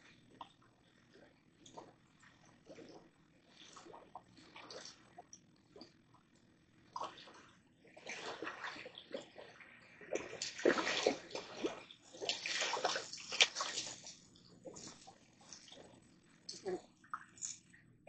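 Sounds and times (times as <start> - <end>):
water splashing and sloshing: 0.2 - 18.0.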